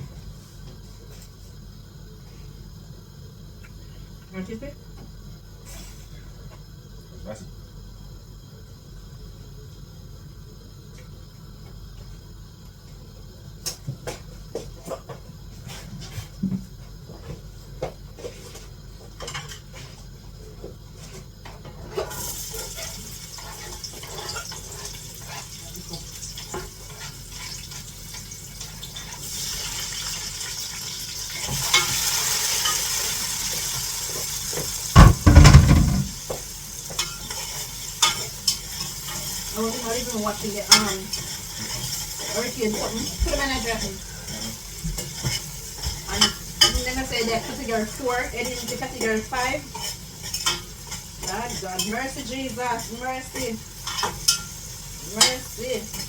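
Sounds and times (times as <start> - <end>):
food sizzling in a pan: 0.0 - 56.0
heavy thumps: 35.0 - 36.2.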